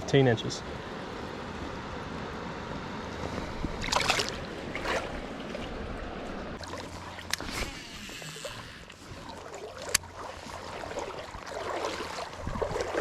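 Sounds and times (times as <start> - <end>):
creek water running: 3.1 - 13.0.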